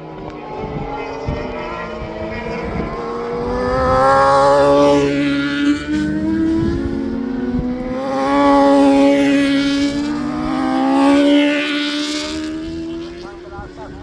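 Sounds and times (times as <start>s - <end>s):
racing motorcycles passing: 0.0s - 14.0s.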